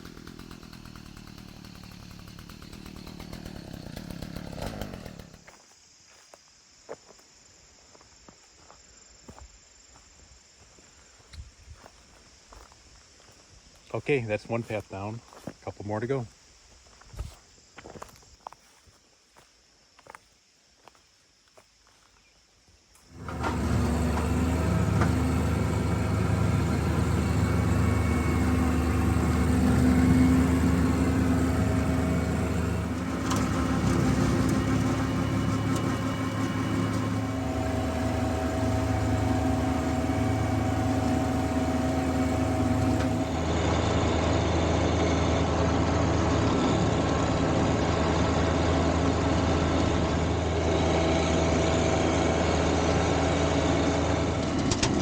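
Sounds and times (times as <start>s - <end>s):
tractor diesel engine running: 0.0s - 5.6s, 23.1s - 55.0s.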